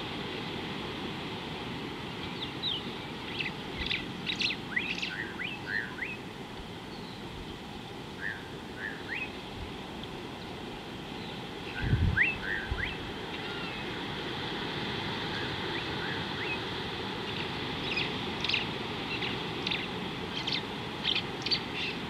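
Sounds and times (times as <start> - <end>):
birds chirping and whistling: 2.4 - 6.2, 11.7 - 13.8, 17.3 - 22.0.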